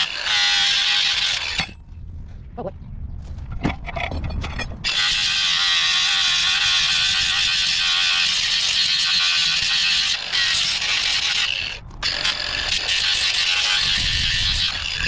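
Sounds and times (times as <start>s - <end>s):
grinder grinding metal: 0.0s - 1.8s, 4.8s - 15.0s.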